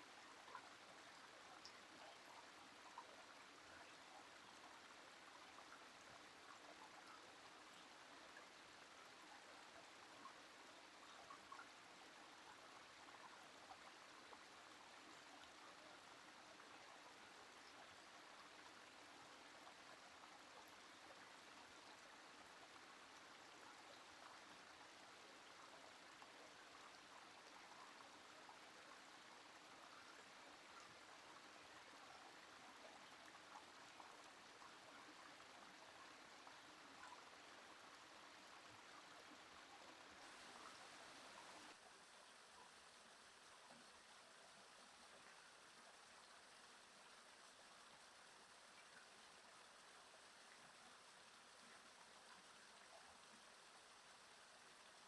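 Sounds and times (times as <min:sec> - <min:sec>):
stream trickling: 0:00.0 - 0:55.0.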